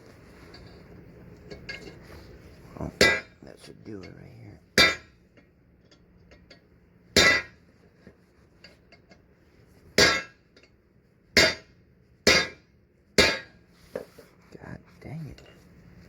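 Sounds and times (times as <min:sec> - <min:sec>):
hammer striking metal: 0:03.0 - 0:03.4, 0:04.8 - 0:05.1, 0:07.2 - 0:07.6, 0:10.0 - 0:10.4, 0:11.4 - 0:11.7, 0:12.3 - 0:12.6, 0:13.2 - 0:13.6.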